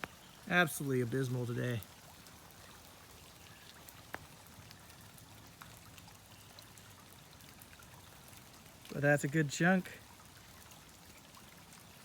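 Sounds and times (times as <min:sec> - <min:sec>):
light rain patter: 0:00.0 - 0:12.0.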